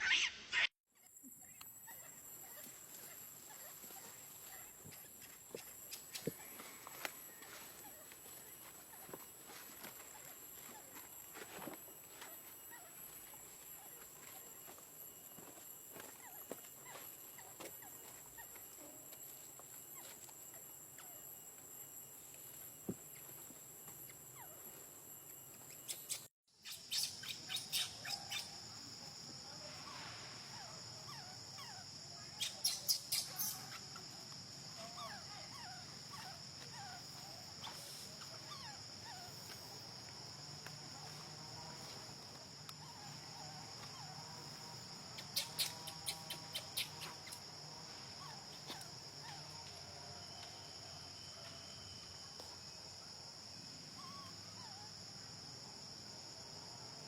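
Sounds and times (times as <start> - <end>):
high-pitched insect drone: 1.4 - 56.6
faint short squeaky calls: 25.5 - 28.7, 29.6 - 34.1, 34.7 - 40.0, 42.8 - 47.5, 48.1 - 52.1
rapid sharp chirping calls: 25.7 - 28.6, 31.6 - 33.9, 45.1 - 47.4.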